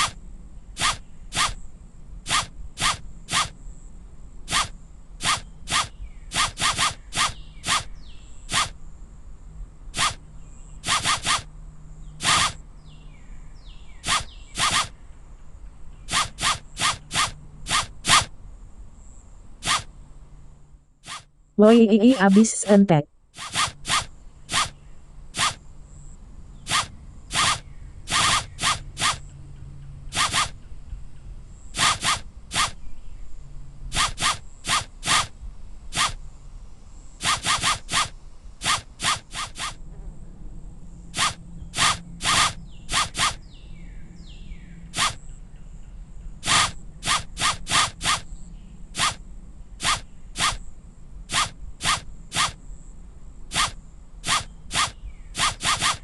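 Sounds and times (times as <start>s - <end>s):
zip-like swishes: 0.8s - 1.6s, 2.3s - 3.5s, 4.5s - 7.9s, 8.5s - 8.7s, 10.0s - 10.2s, 10.8s - 11.5s, 12.2s - 12.6s, 14.0s - 14.9s, 16.1s - 18.3s, 19.6s - 19.9s, 23.4s - 24.7s, 25.4s - 25.6s, 26.7s - 29.2s, 30.1s - 30.6s, 31.8s - 32.8s, 33.9s - 35.3s, 36.0s - 36.2s, 37.2s - 39.8s, 41.2s - 43.4s, 45.0s - 45.2s, 46.4s - 48.2s, 49.0s - 49.2s, 49.8s - 50.6s, 51.3s - 52.6s, 53.5s - 56.0s
faint low hum: 39.5s - 56.0s.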